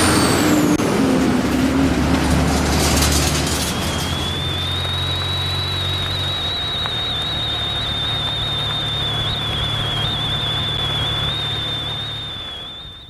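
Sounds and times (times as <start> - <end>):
motorcycle engine drone: 0.0 - 13.0
high-pitched whistle: 3.5 - 13.0.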